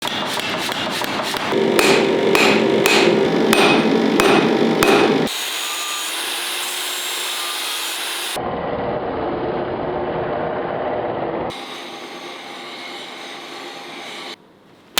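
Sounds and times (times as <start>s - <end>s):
hammer striking steel: 0.0s - 5.4s
machine noise from tool work: 0.0s - 8.4s, 11.5s - 14.4s.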